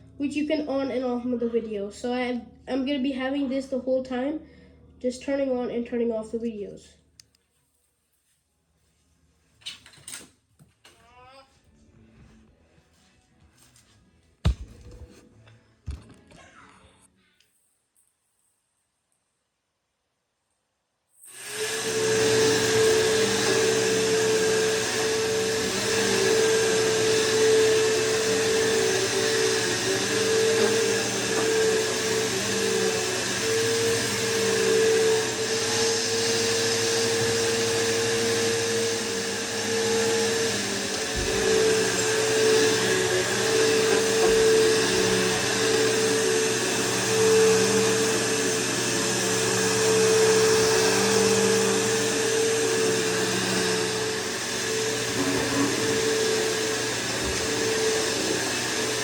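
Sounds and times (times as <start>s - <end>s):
vacuum cleaner running on carpet: 21.3s - 59.0s.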